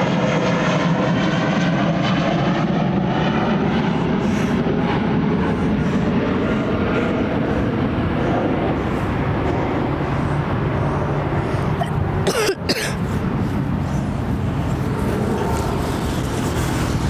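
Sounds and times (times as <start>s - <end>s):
jet engines rumbling: 0.0s - 17.0s
person coughing: 11.6s - 13.0s.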